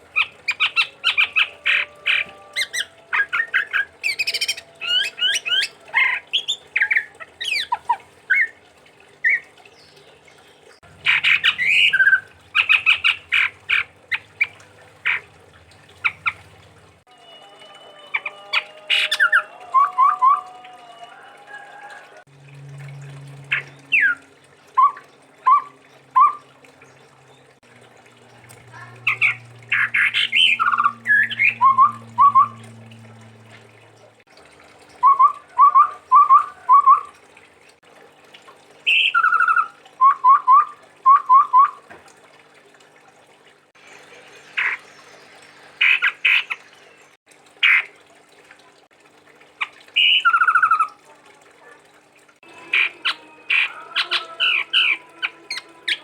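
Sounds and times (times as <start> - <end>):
bird singing whistled notes: 30.2 - 32.6.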